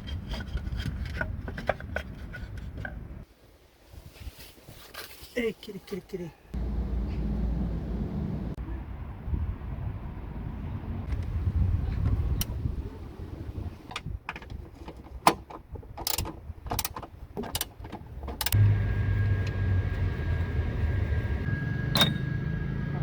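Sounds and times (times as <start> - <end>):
car engine idling: 6.6 - 8.6, 18.6 - 23.0.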